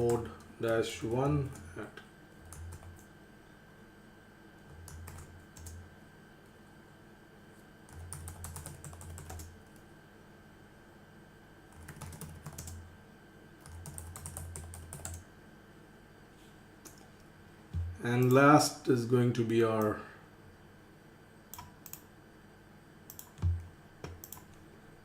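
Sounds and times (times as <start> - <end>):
computer keyboard typing: 2.4 - 3.1, 4.7 - 5.8, 7.9 - 9.8, 11.7 - 12.8, 13.6 - 15.2, 21.5 - 22.0, 23.1 - 24.6.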